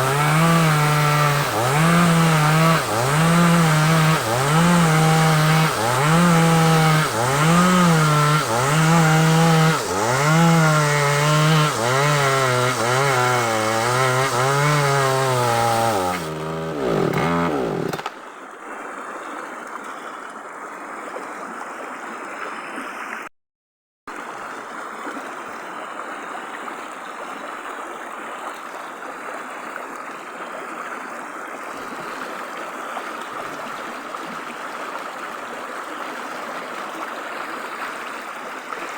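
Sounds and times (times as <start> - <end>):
chainsaw cutting log: 0.0 - 18.2.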